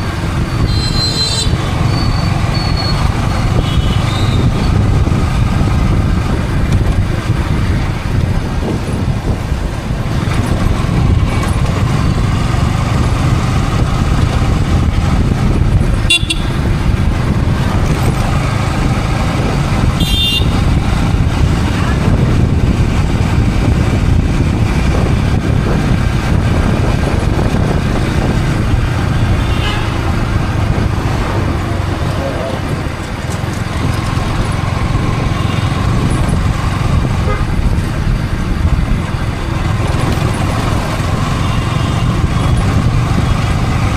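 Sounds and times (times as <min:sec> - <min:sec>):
motorcycle engine running: 0:00.0 - 0:43.9
wind rush on microphone: 0:00.0 - 0:43.9
vehicle horn toots: 0:00.6 - 0:03.0, 0:03.6 - 0:04.5, 0:16.0 - 0:16.7, 0:20.0 - 0:20.6, 0:29.3 - 0:30.1, 0:37.2 - 0:37.6.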